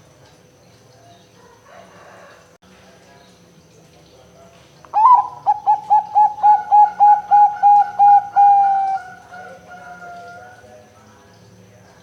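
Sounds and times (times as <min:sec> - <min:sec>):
faint steady hum: 0:00.0 - 0:12.0
dove cooing: 0:05.0 - 0:10.6.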